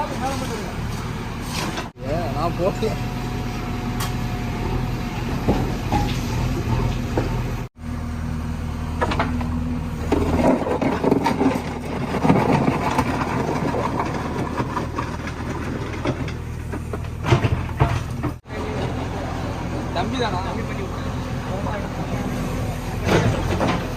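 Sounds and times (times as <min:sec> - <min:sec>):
diesel engine running: 0:00.0 - 0:23.9
digging rattling and scraping: 0:09.0 - 0:20.6, 0:21.8 - 0:23.9.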